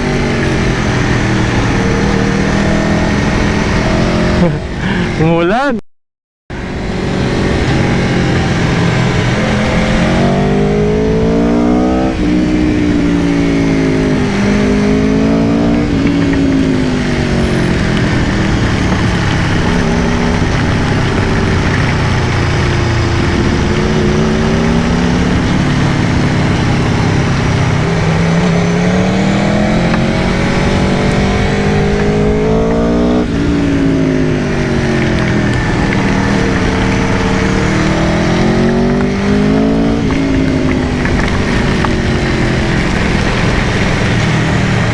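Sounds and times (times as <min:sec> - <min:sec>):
motorcycle engine revving: 0:00.0 - 0:05.2, 0:06.5 - 0:44.9.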